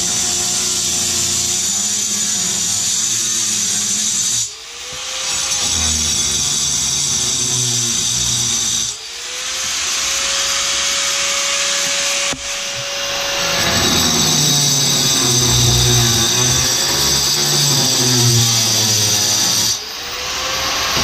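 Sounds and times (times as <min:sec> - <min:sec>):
power saw cutting tile: 0:00.0 - 0:21.0.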